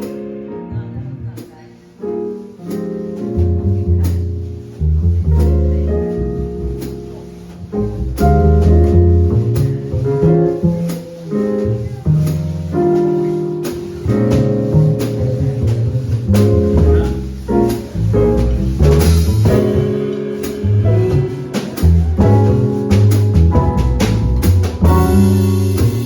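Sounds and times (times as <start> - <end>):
piano chords: 0.0 - 26.0
walking bass line: 2.8 - 26.0
drum and cymbal hits: 9.6 - 26.0.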